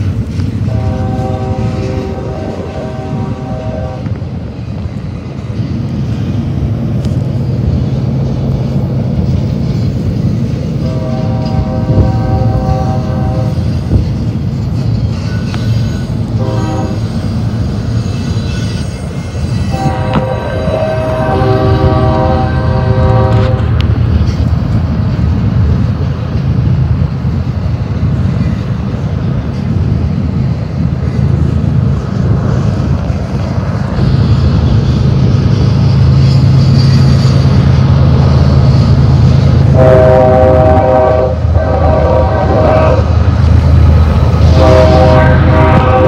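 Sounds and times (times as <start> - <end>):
freight train rumbling: 0.0 - 46.0
train horn: 0.6 - 4.3, 10.8 - 14.1, 15.2 - 17.2, 18.5 - 23.9, 39.6 - 43.3, 44.4 - 46.0.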